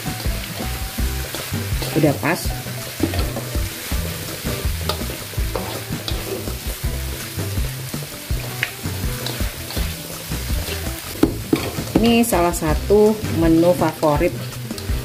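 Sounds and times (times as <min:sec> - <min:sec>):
food sizzling in a wok: 0:00.0 - 0:15.0
spatula scraping and tapping pan: 0:00.1 - 0:15.0.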